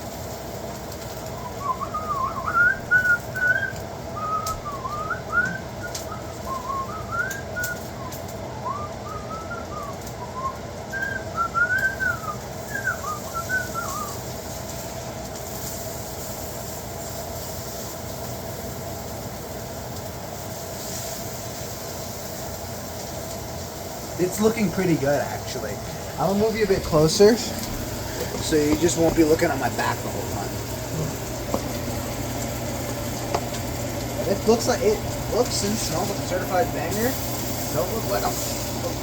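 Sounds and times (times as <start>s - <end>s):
kitchen fan humming: 0.0s - 39.0s
person whistling a tune: 1.4s - 14.2s.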